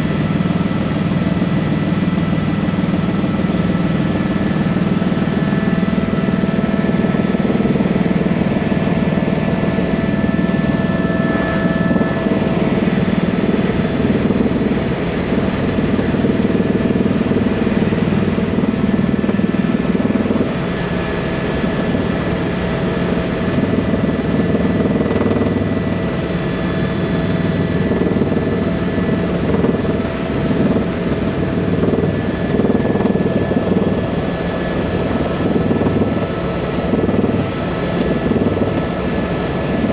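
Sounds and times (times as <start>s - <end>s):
helicopter engine and rotor running: 0.0s - 39.9s.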